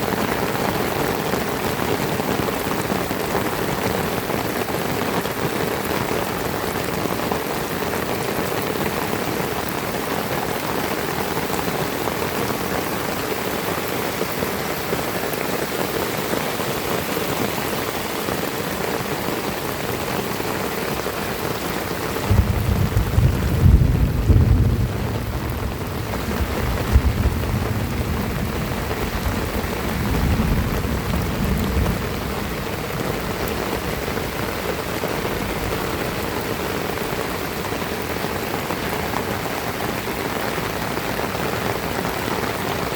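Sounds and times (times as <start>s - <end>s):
heavy rain pattering: 0.0s - 42.9s.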